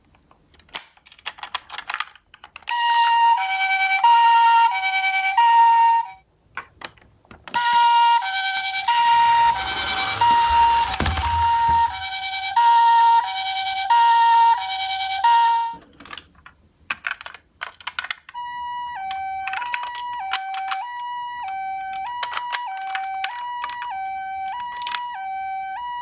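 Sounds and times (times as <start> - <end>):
clicks and rattles: 0.1 - 2.8, 8.2 - 12.3, 15.8 - 18.3
toy two-tone siren: 2.7 - 6.2, 7.5 - 15.8, 18.3 - 26.0.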